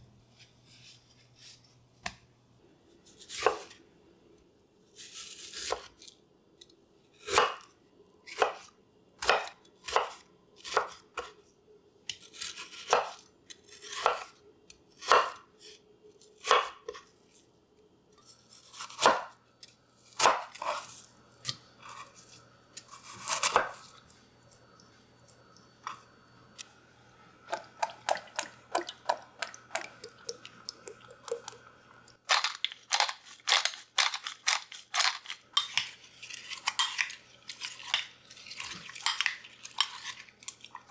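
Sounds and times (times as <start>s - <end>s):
knife chopping on cutting board: 7.3s - 7.6s, 8.4s - 8.6s, 9.2s - 10.2s, 13.9s - 14.3s, 15.0s - 15.4s, 16.5s - 17.0s, 18.9s - 19.3s, 20.2s - 20.8s, 22.8s - 23.8s.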